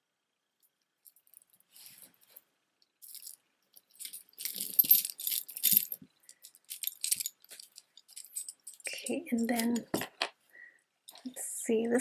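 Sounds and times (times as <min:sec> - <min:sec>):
beads clicking and rattling: 0:01.0 - 0:10.2.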